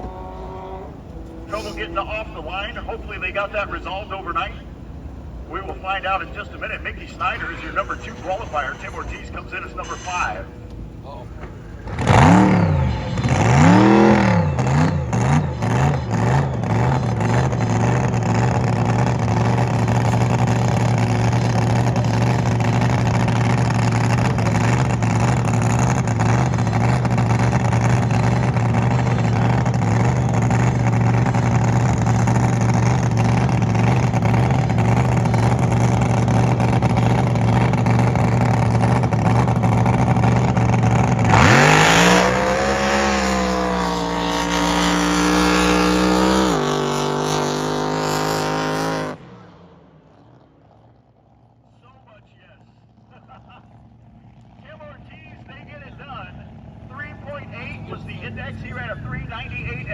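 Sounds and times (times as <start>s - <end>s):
boat engine revving: 0.0s - 49.3s.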